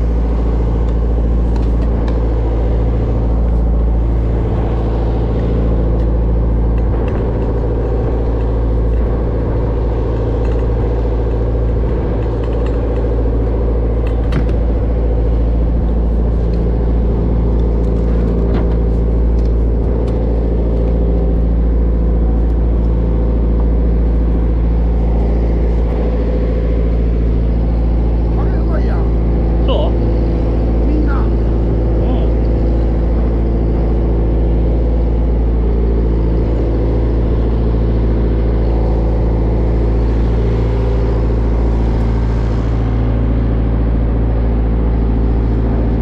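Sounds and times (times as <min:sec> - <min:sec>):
boat diesel engine running: 0:00.0 - 0:46.0.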